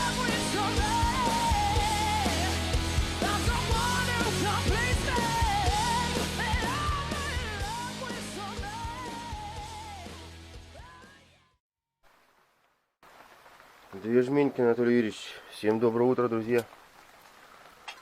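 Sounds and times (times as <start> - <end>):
rock song with vocals: 0.0 - 11.6.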